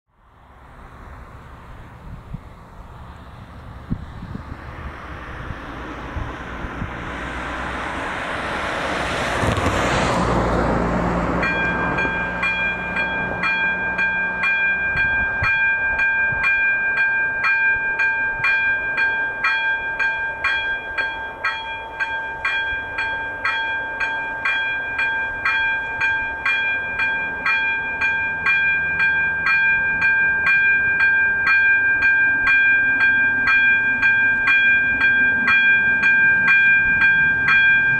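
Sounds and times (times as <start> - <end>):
road vehicle passing: 0.2 - 37.9
level crossing bell ringing: 11.4 - 37.9.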